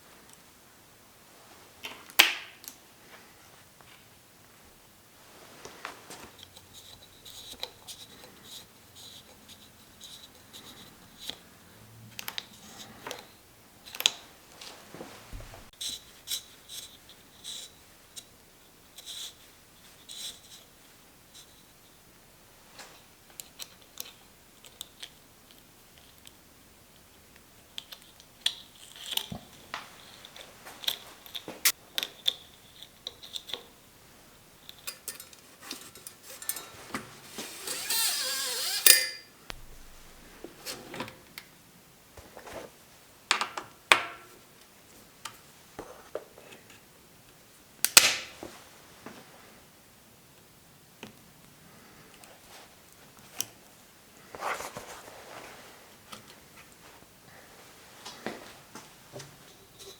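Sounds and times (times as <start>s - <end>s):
metallic clicks of bicycle tools: 34.7s - 40.2s
loud rasping burst: 37.3s - 40.3s.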